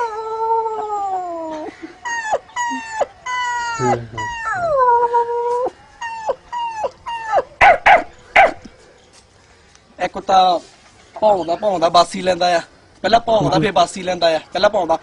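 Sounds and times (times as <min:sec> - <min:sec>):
man imitating crying dog: 0:00.0 - 0:07.4.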